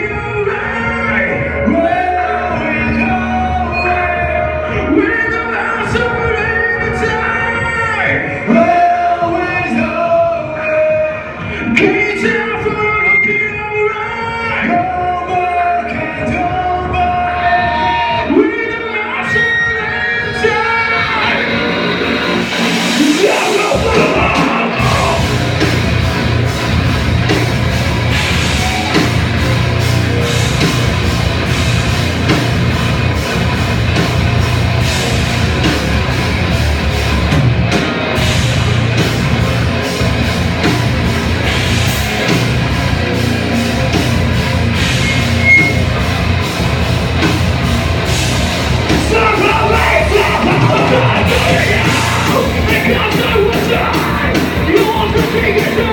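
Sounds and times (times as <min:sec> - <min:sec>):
rock band playing loud: 0:00.0 - 0:55.9
shouted vocals: 0:23.0 - 0:25.6, 0:48.9 - 0:55.9.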